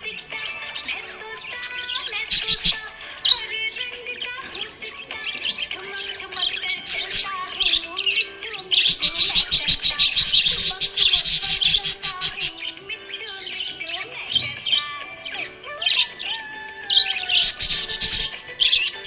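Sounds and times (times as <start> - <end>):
budgerigar chirping: 0.0 - 19.0.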